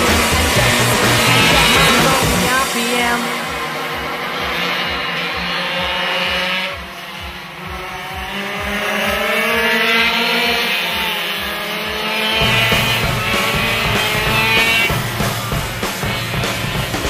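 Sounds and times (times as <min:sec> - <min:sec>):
small two-stroke bike engines revving: 0:00.0 - 0:17.0.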